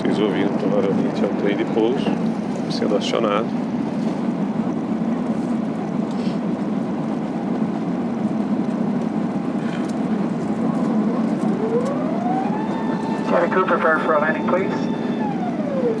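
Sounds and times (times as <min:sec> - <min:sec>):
aircraft cabin noise: 0:00.0 - 0:16.0
flap drive whine: 0:08.0 - 0:16.0.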